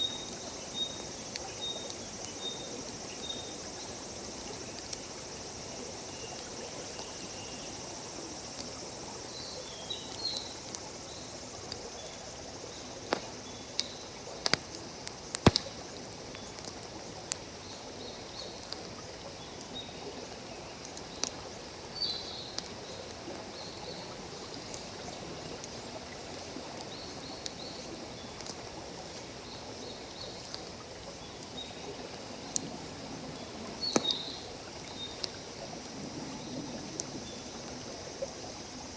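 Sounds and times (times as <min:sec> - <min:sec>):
campfire crackling and popping: 0:13.0 - 0:17.5, 0:28.4 - 0:28.8, 0:33.8 - 0:34.5.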